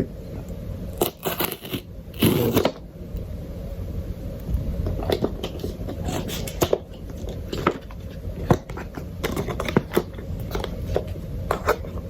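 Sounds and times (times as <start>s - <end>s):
faint low hum: 0.0s - 12.0s
packaging clicks and crackles: 6.4s - 12.0s.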